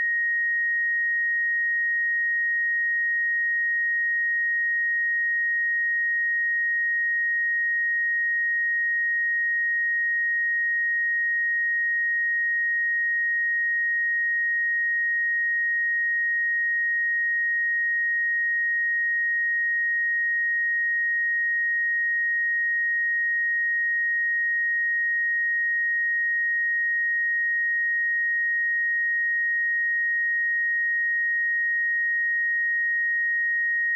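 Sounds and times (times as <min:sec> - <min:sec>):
high-pitched sine-wave test tone: 0:00.0 - 0:33.9.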